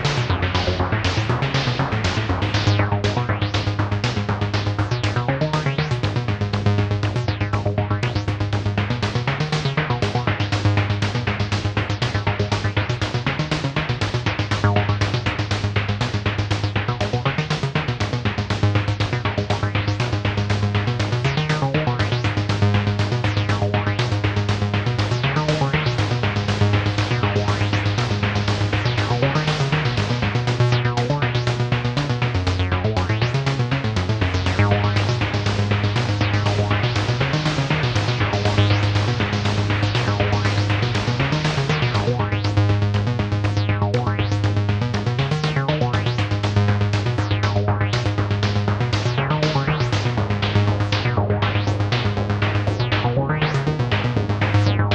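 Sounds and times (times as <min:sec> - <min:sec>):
drum synthesizer percussive hits: 0:00.0 - 0:54.9
synthesizer bass line: 0:00.0 - 0:54.9
synth bass note: 0:34.4 - 0:54.9.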